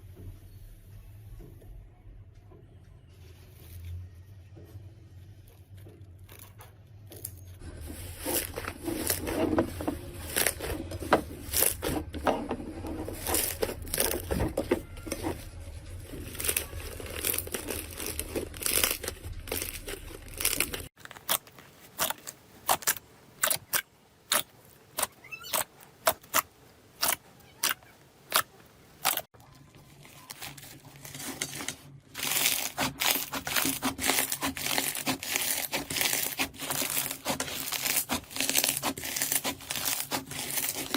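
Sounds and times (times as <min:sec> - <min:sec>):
slime crackling and popping: 0:16.0 - 0:26.4, 0:30.0 - 0:40.9.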